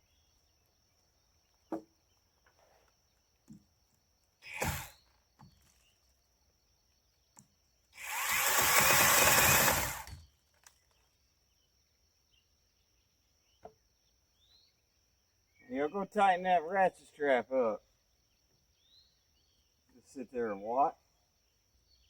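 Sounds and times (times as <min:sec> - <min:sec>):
angle grinder cutting wood: 0:04.5 - 0:05.0, 0:08.0 - 0:10.2.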